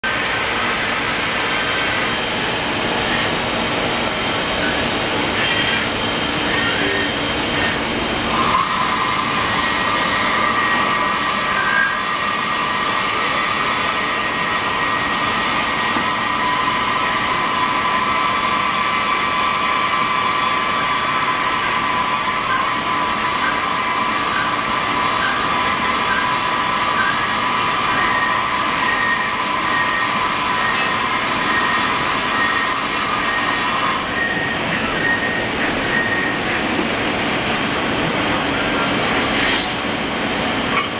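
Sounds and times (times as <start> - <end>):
steady machine whine: 0.0 - 40.9
lathe mechanical hiss: 0.1 - 16.4.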